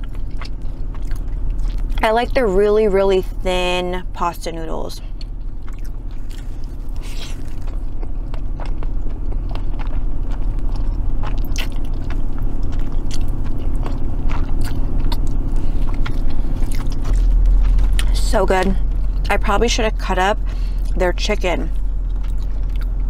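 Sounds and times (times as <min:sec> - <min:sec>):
chewing spaghetti: 0:00.0 - 0:02.4, 0:05.0 - 0:21.1, 0:21.7 - 0:23.0
steady low hum: 0:00.0 - 0:23.0.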